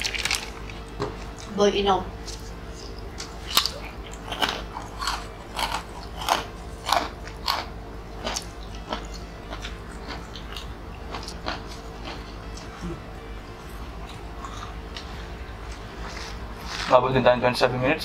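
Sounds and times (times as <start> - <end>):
crunching crisp crackers: 0.0 - 1.5, 3.2 - 12.8
steady low hum: 0.0 - 18.0.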